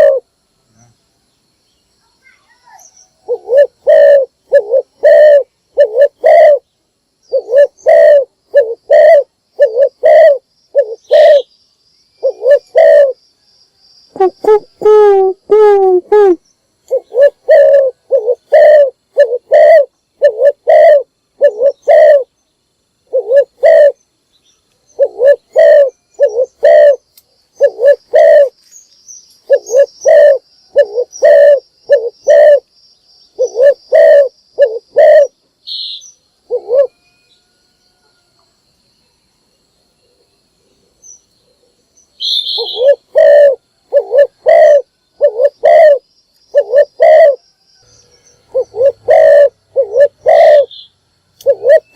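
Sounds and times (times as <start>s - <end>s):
dove cooing: 0.0s - 0.3s, 2.6s - 6.6s, 7.3s - 11.5s, 12.2s - 13.2s, 14.1s - 22.3s, 23.0s - 24.0s, 24.9s - 27.0s, 27.6s - 28.6s, 29.4s - 32.7s, 33.4s - 35.4s, 36.4s - 37.0s, 41.6s - 47.4s, 48.4s - 50.8s, 51.4s - 51.9s.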